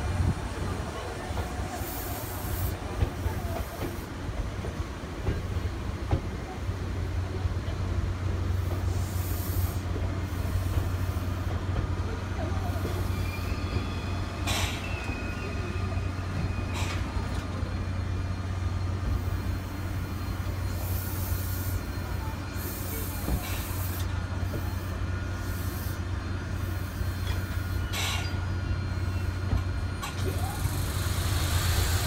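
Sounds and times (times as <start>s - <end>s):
electric train rolling slowly: 0.0s - 32.0s.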